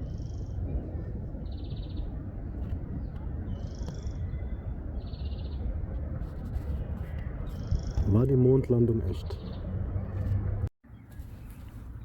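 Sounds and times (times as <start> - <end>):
songbird calling: 7.4 - 8.1.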